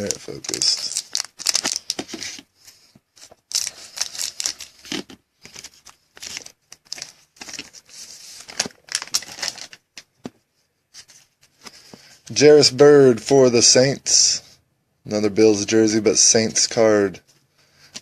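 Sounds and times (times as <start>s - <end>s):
trading cards being handled: 0.0s - 12.2s.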